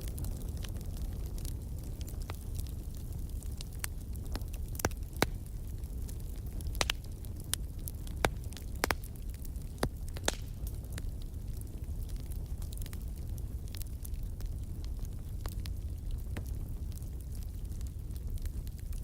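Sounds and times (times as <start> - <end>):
crackles and pops of burning logs: 0.0 - 19.0
wood fire burning: 0.0 - 19.0.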